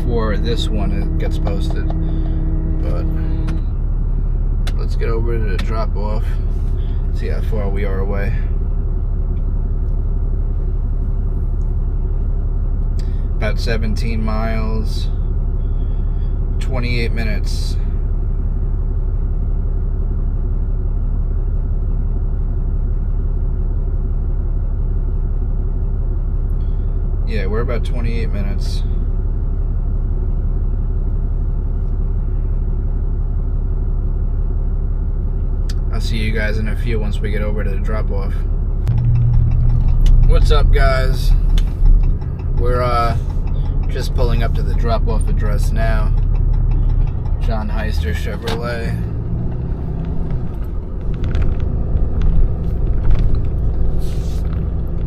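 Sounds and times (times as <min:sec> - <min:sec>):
rattles and clicks: 0:00.0 - 0:03.8, 0:38.3 - 0:55.0
faint steady hum: 0:00.0 - 0:55.0
truck engine rumble: 0:00.0 - 0:55.0.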